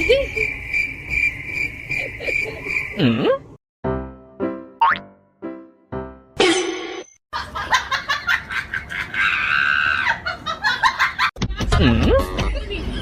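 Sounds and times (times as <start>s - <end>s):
people laughing: 7.4s - 13.0s.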